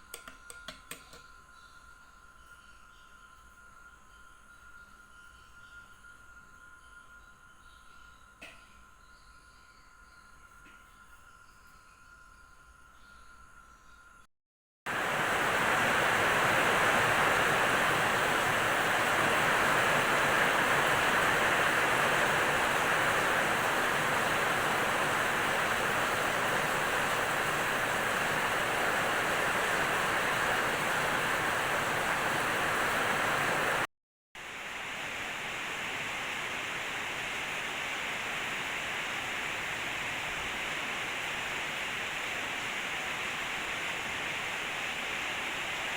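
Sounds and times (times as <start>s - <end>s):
rain falling steadily: 14.9s - 45.9s.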